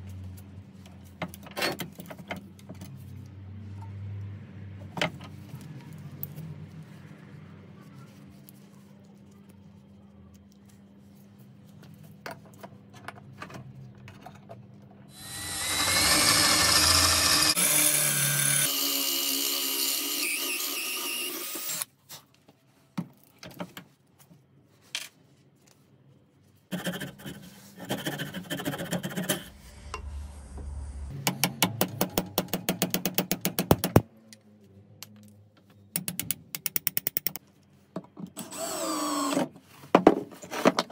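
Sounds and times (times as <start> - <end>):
electric power tool running: 15.1 - 21.8.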